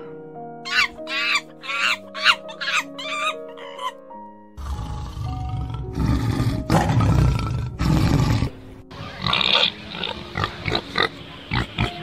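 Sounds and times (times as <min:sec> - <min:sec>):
pig grunting and squealing: 0:00.7 - 0:04.0, 0:04.6 - 0:12.0
tiger growling: 0:04.6 - 0:12.0.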